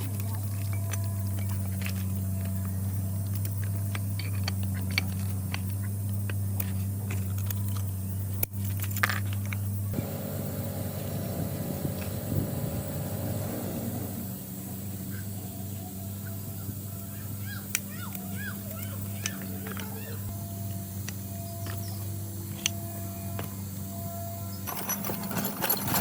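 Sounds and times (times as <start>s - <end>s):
rough noisy running machine: 0.0s - 17.3s
steady machine hum: 0.0s - 26.0s.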